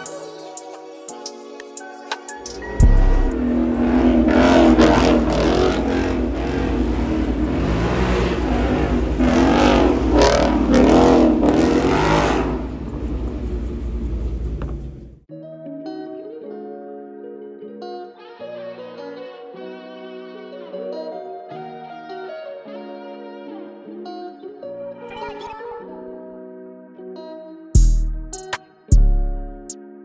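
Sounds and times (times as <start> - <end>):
vehicle engine revving: 2.7 - 15.2.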